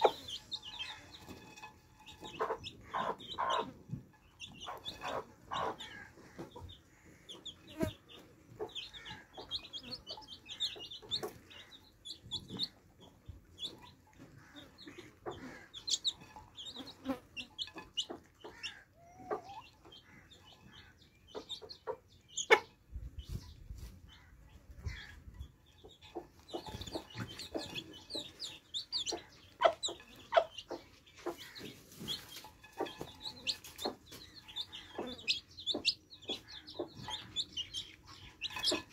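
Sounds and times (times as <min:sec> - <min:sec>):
chicks peeping: 0:00.0 - 0:38.9
hen clucking: 0:00.0 - 0:38.9.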